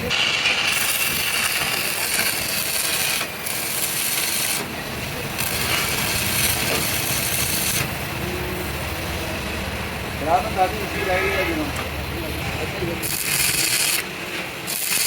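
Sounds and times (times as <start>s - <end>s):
tool grinding against metal: 0.1s - 4.7s, 13.0s - 15.0s.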